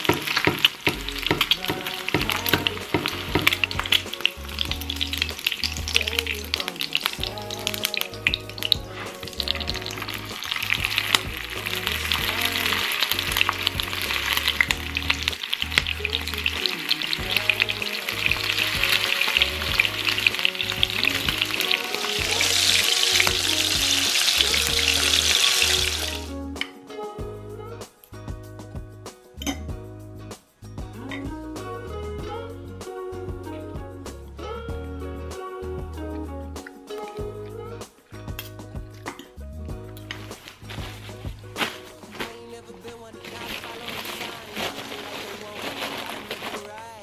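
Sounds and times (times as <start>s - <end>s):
food sizzling in oil: 0.0s - 26.3s, 43.1s - 47.0s
background music: 0.0s - 47.0s.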